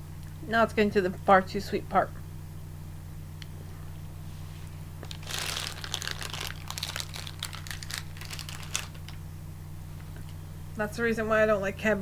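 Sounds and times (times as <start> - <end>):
steady low hum: 0.0 - 12.0
candy wrapper crinkling: 5.0 - 9.2.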